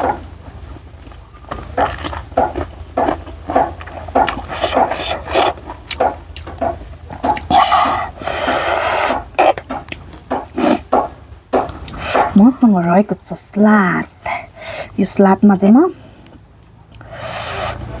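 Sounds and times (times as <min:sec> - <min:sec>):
wet chewing and lip-smacking: 0:00.0 - 0:12.4
noisy hiss: 0:00.0 - 0:18.0.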